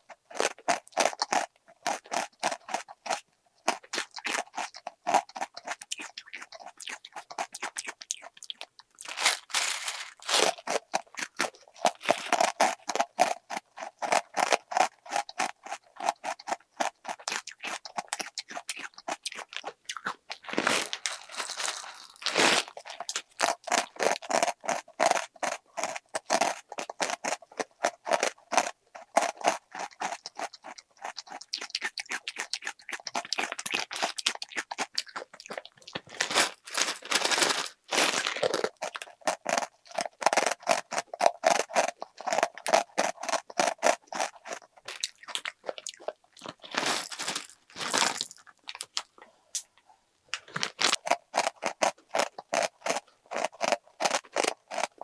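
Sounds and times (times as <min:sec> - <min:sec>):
chewing crunchy snacks: 0:00.0 - 0:55.0
plastic wrapper crinkling: 0:08.9 - 0:12.4, 0:20.3 - 0:24.0, 0:35.7 - 0:38.8, 0:46.0 - 0:49.2, 0:50.3 - 0:51.0.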